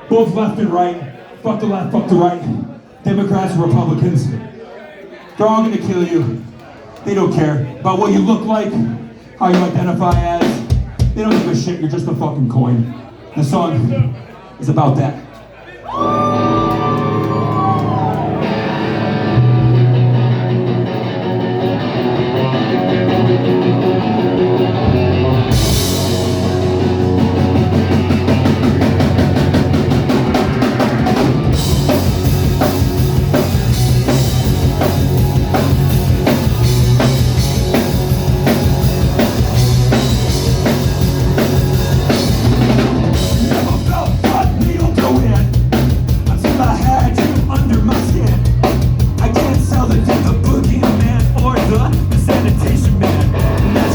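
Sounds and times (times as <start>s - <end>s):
driving drum beat: 9.5s - 11.9s, 22.6s - 53.9s
live rock band playing: 15.9s - 53.9s.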